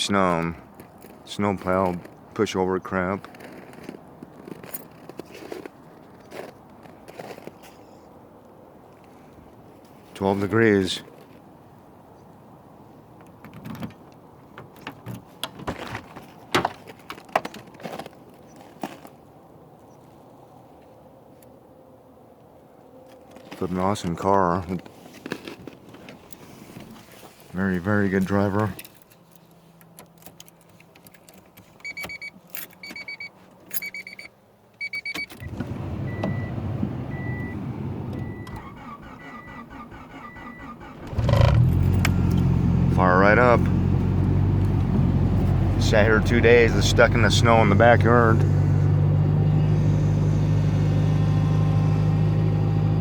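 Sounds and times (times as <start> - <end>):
dashboard warning chime beeping: 31.8 - 35.3, 36.0 - 37.6
car engine starting and idling: 35.3 - 53.0.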